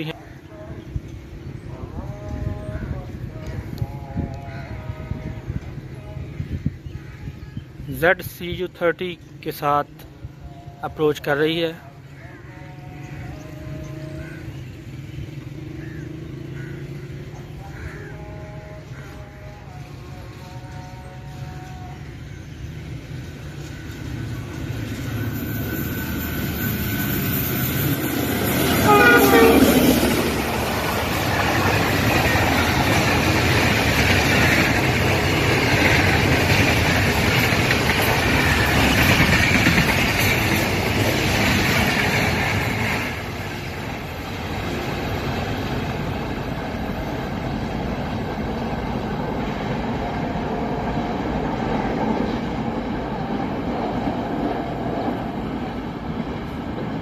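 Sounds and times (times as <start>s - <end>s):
train rumbling past: 0.0s - 57.0s
locomotive horn: 18.2s - 22.1s, 28.6s - 30.6s
train wheels clattering: 24.8s - 43.9s.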